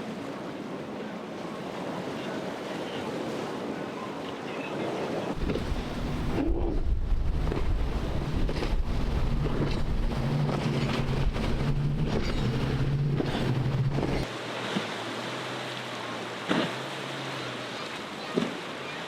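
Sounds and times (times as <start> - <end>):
waves washing: 0.0 - 19.0
wind buffeting microphone: 5.3 - 14.3
boat engine running: 5.3 - 19.0.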